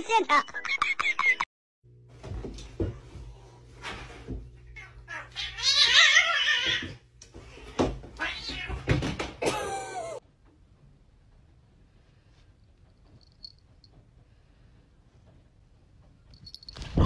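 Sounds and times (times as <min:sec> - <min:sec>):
cat yowling: 0:04.8 - 0:06.9.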